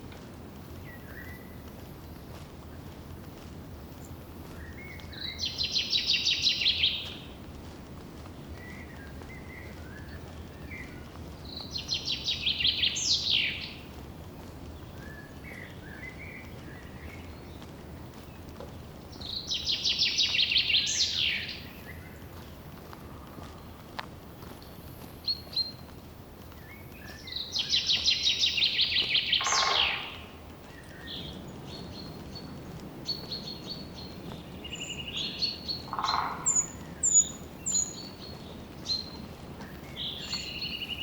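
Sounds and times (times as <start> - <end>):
songbird trilling: 27.2 - 31.1, 34.6 - 38.2.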